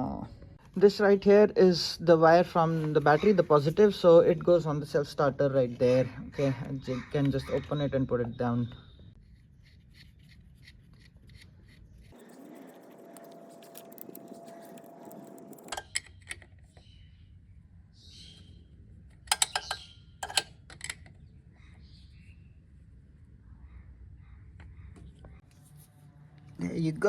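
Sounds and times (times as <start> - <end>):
metallic clicks of tools handled: 19.2 - 21.1.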